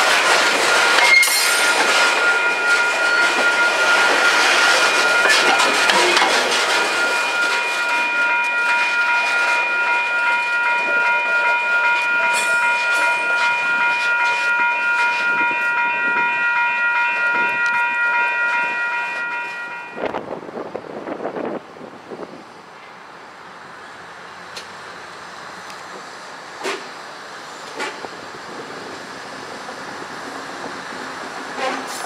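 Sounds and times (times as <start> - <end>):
grade-crossing bell ringing: 0.0 - 20.7.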